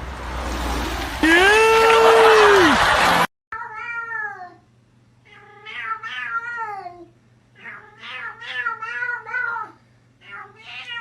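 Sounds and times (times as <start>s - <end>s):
cat meowing: 5.3s - 11.0s.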